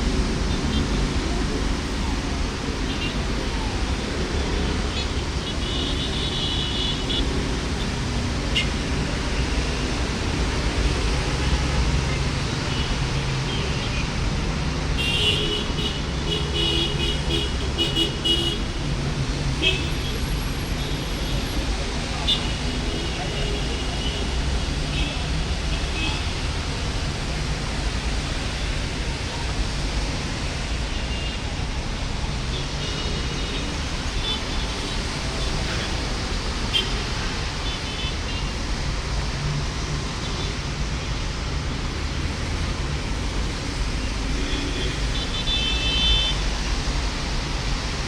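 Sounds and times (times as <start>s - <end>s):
heavy rain hissing: 18.6s - 48.0s.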